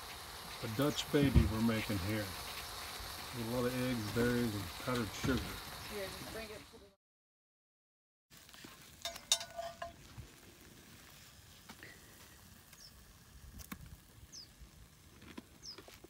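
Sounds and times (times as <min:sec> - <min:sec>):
metal fork scraping a pot: 0:09.0 - 0:10.0.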